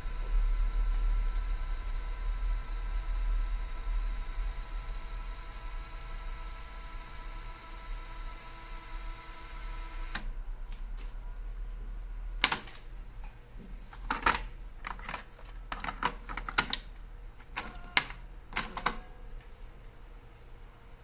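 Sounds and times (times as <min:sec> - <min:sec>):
cassette deck keys clicking: 0:12.4 - 0:12.8, 0:14.0 - 0:19.1.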